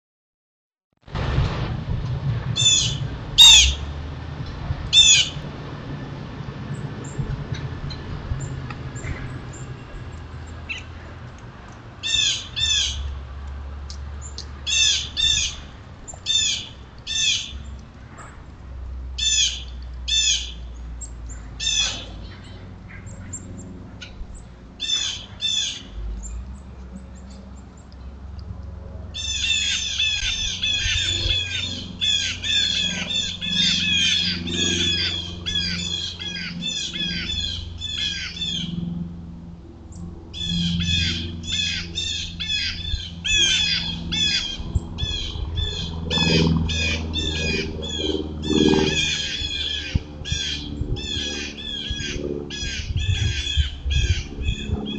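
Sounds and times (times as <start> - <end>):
birds calling: 2.6 - 3.9, 4.9 - 5.4, 7.9 - 11.2, 12.0 - 13.2, 14.2 - 17.8, 19.2 - 26.4, 29.2 - 39.0, 39.9 - 54.9.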